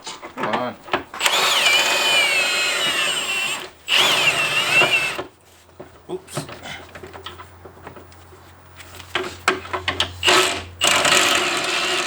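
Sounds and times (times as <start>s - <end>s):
cordless power tool spinning: 1.2s - 5.3s, 10.2s - 12.0s.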